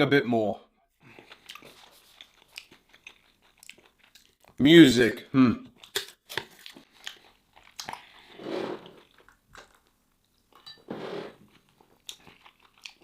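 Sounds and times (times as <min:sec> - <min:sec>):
wet chewing: 0:01.1 - 0:04.6, 0:05.7 - 0:10.5, 0:11.4 - 0:13.0.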